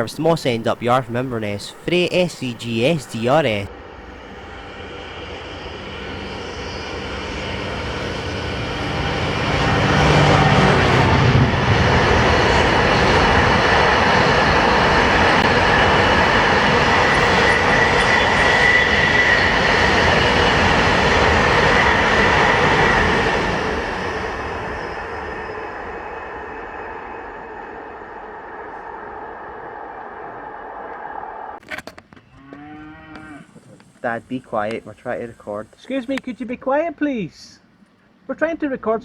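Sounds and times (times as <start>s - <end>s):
diesel locomotive engine drone: 3.7s - 25.8s.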